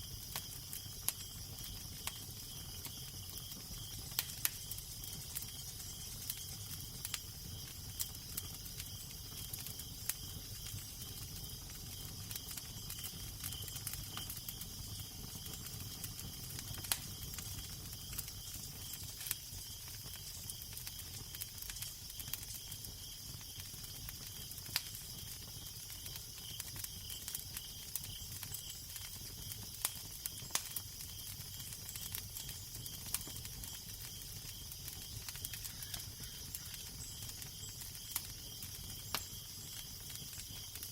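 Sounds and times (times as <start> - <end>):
crackling fire: 0.0 - 40.9.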